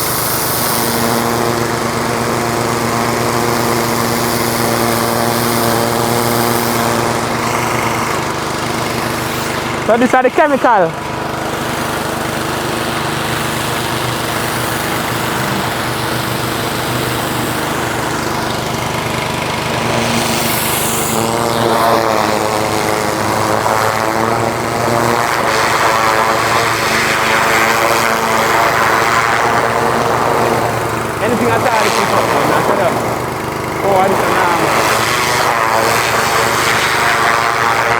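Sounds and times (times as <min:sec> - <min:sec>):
water spray hiss: 0:00.0 - 0:09.7, 0:11.6 - 0:18.5
small pump engine running: 0:00.0 - 0:37.9.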